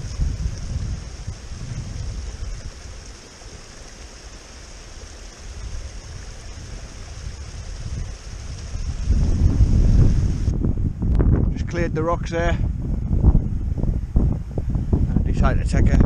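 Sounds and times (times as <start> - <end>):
wind buffeting microphone: 0.0 - 4.1, 5.0 - 16.0
steady rushing hiss: 0.0 - 11.7.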